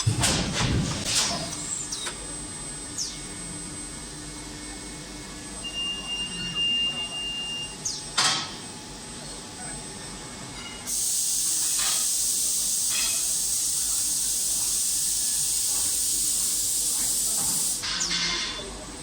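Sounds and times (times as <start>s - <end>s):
second steady tone: 5.6s - 7.8s.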